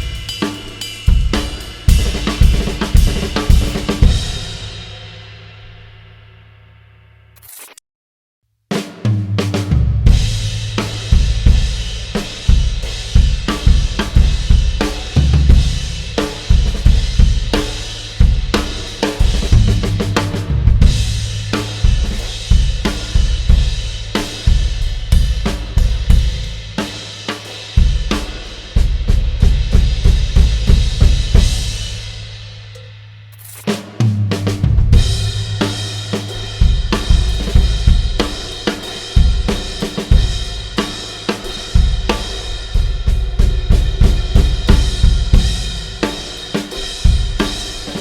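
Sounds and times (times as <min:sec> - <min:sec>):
drum kit groove: 0:00.0 - 0:06.2, 0:08.7 - 0:48.0
struck cymbal ringing: 0:35.0 - 0:41.7.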